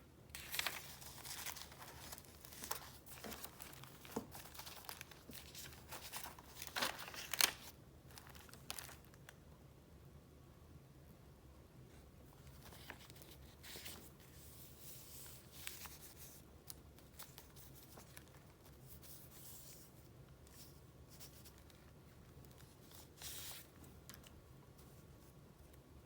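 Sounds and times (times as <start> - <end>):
paper rustling: 0.3 - 9.2, 12.3 - 19.9, 20.5 - 25.8.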